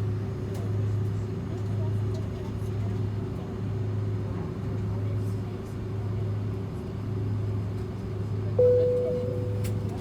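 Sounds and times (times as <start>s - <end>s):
airliner cabin hum: 8.6s - 10.0s
thin steady tone: 8.6s - 10.0s.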